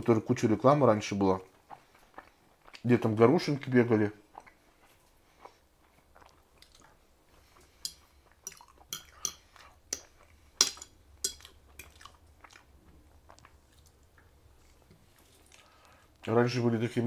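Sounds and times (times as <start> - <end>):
person chewing food: 1.4 - 2.9, 4.2 - 16.2.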